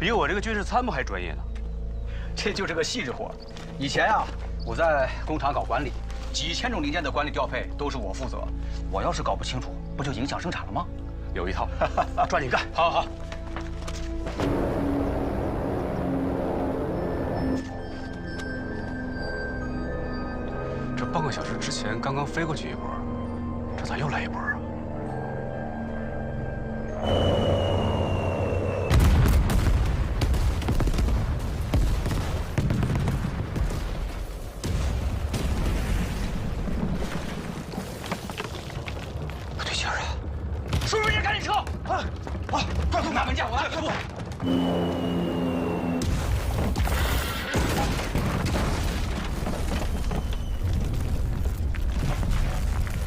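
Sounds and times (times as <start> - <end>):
dramatic music: 0.0 - 32.5, 44.4 - 48.9
high falling whistle: 26.6 - 29.0, 44.4 - 46.1
bomb explosions: 28.8 - 37.8.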